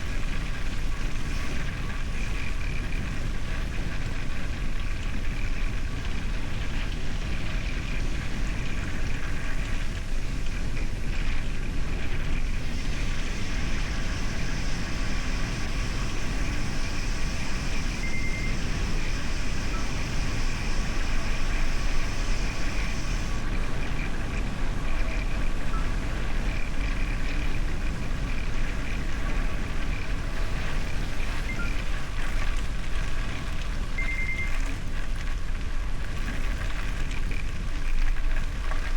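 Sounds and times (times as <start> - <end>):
wind rush on microphone: 0.0 - 38.9
high hiss: 12.5 - 24.2
tyres rumbling over gravel: 34.7 - 38.9.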